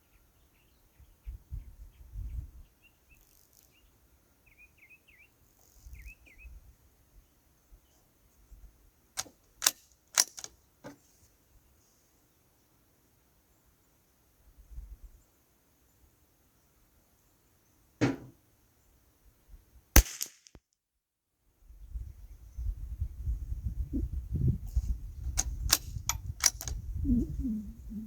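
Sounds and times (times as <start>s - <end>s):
rifle bolt metallic clicks: 9.2s - 10.6s, 20.0s - 20.5s, 25.4s - 26.8s.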